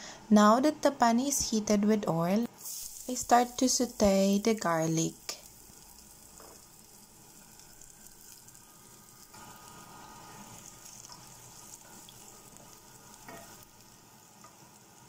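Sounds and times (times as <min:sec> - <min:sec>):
chicken frying: 0:02.6 - 0:15.0
garlic sizzling in hot oil: 0:02.6 - 0:15.0
wooden spatula stirring: 0:10.1 - 0:13.8.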